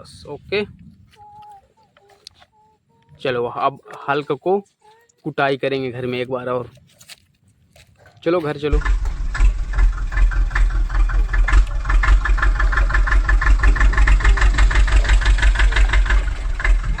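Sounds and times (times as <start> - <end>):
toy tractor engine chugging: 8.7 - 17.0.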